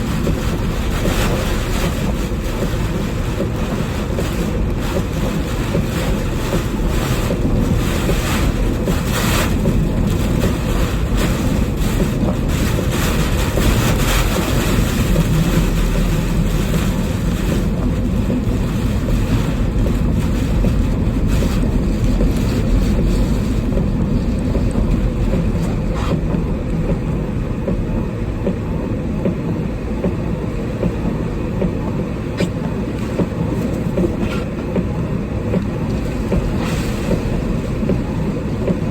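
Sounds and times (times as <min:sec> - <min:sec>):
strong wind blasting microphone: 0:00.0 - 0:28.0.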